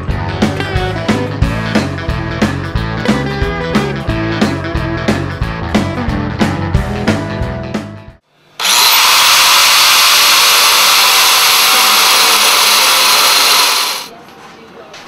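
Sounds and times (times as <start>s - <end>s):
power tool spinning at high speed: 8.6s - 14.1s.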